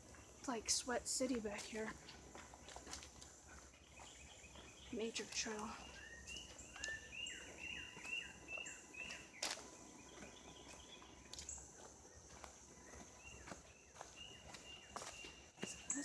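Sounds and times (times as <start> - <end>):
faint insect drone: 0.0 - 16.0
bird whistling: 5.8 - 9.2.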